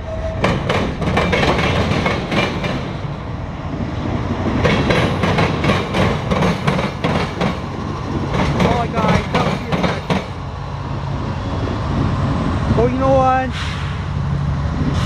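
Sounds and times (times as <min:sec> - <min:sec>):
train low rumble: 0:00.0 - 0:15.0
train wheels clacking over rail joints: 0:00.4 - 0:03.0, 0:04.5 - 0:10.4.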